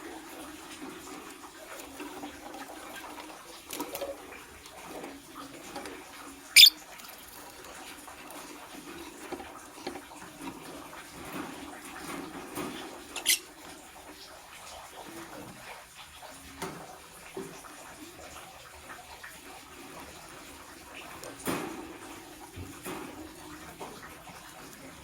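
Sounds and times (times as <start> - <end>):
lovebird chirping: 6.6 - 6.8, 13.2 - 13.4.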